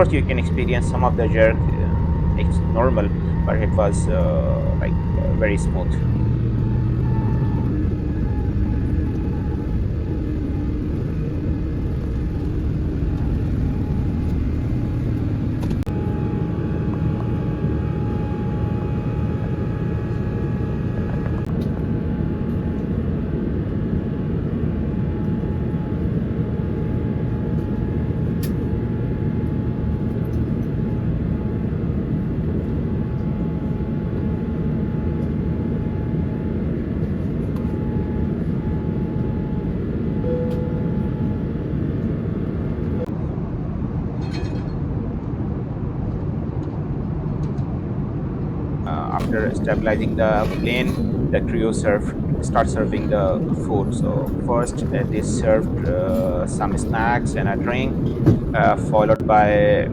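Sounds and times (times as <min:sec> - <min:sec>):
airliner engines rumbling in cabin: 0:00.0 - 0:59.9
faint steady whine: 0:00.0 - 0:59.9.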